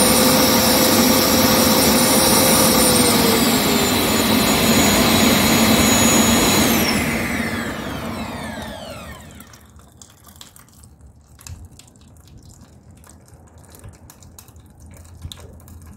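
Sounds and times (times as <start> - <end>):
air blower roaring and spinning down: 0.0 - 9.6.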